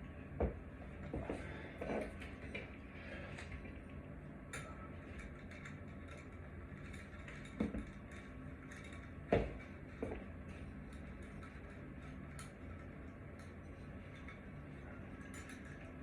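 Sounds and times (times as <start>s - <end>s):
steady low hum: 0.0s - 16.0s
hard objects knocking and clinking: 6.8s - 10.3s.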